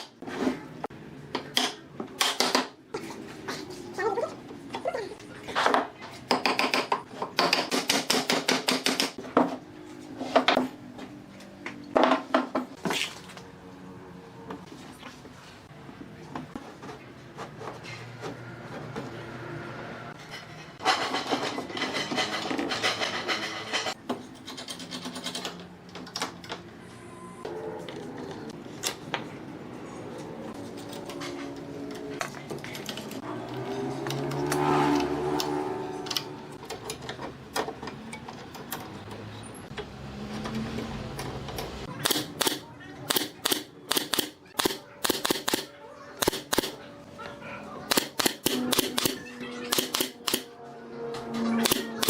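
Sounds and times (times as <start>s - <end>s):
sharp clicks: 47.9s - 50.5s.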